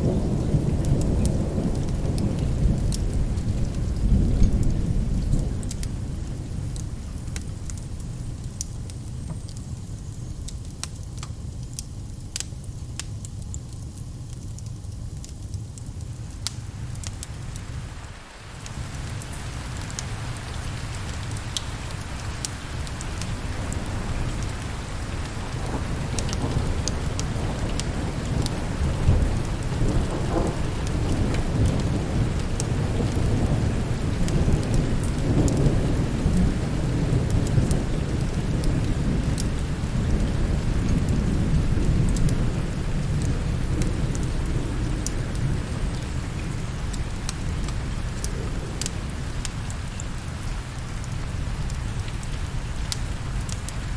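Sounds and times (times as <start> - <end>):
low roll of thunder: 0.0 - 8.2, 18.5 - 52.6
steady rain: 0.0 - 53.9.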